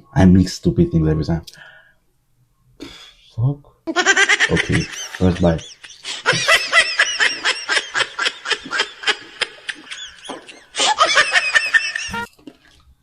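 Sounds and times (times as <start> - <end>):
man giggling: 4.0 - 12.3.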